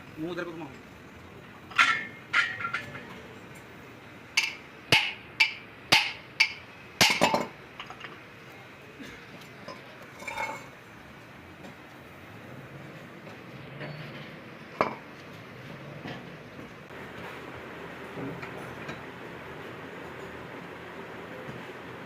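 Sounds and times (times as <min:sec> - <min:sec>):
metal tools clinking: 0:01.7 - 0:03.7, 0:09.5 - 0:10.8.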